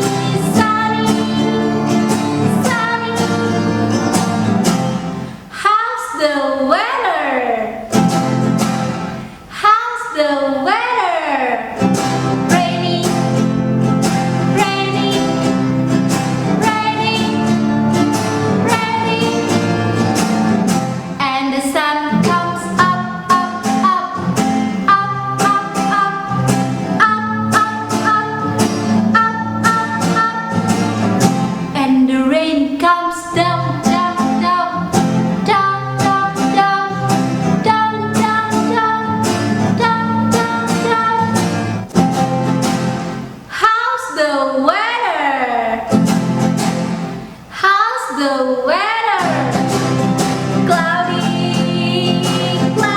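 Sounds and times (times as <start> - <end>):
woman singing: 0.0 - 4.7, 5.4 - 7.9, 9.5 - 13.6, 14.3 - 41.8, 43.5 - 46.0, 47.5 - 52.9
instrumental accompaniment: 0.0 - 5.5, 11.8 - 21.2, 22.1 - 31.8, 33.4 - 43.5.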